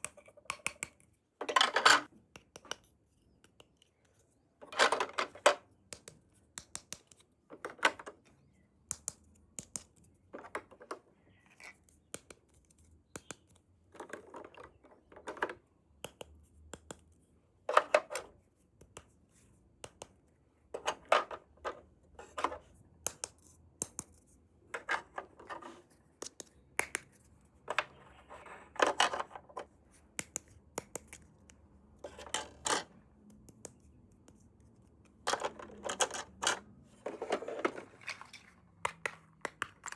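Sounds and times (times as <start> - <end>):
scrapes and rustles: 35.3 - 38.8.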